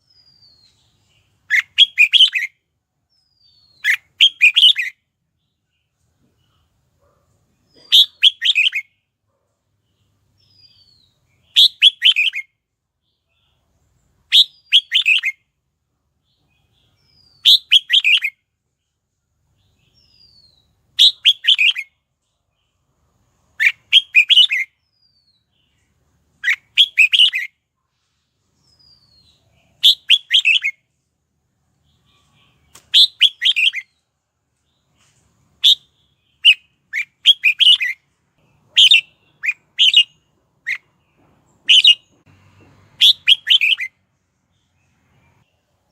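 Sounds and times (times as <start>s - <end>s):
bird singing short phrases: 0.0s - 6.7s, 7.6s - 9.0s, 9.8s - 15.4s, 16.2s - 18.4s, 19.6s - 22.0s, 23.6s - 27.5s, 28.6s - 30.8s, 31.8s - 34.0s, 35.6s - 41.0s, 41.6s - 42.2s, 43.0s - 43.9s.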